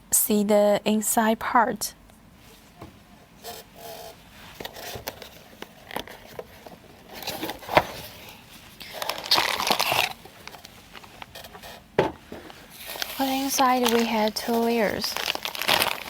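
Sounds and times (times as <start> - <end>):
plastic bags crinkling: 4.2 - 16.0.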